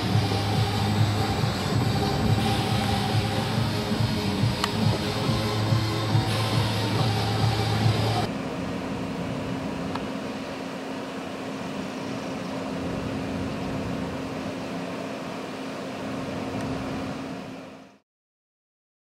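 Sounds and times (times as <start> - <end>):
mechanical hum with low drone: 0.0 - 18.0.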